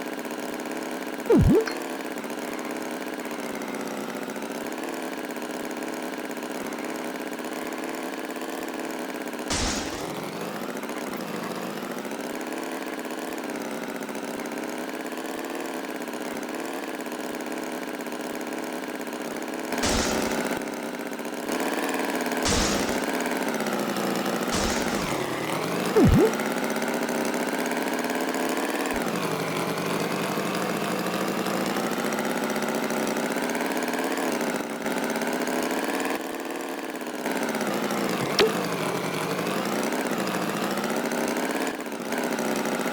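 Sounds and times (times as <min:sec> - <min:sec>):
rising and falling tone: 0:01.3 - 0:01.8, 0:26.0 - 0:26.3.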